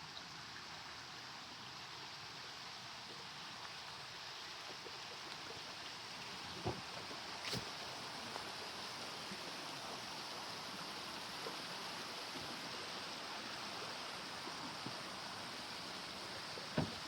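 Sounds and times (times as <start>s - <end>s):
stream running over stones: 0.0s - 17.0s.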